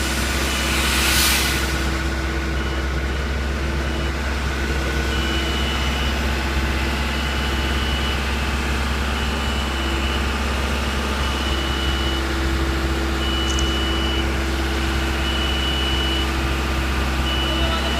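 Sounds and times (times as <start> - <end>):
diesel truck engine idling: 0.0 - 17.9
high warning beeps: 11.1 - 12.3, 13.2 - 14.4, 15.0 - 16.3, 17.2 - 17.9.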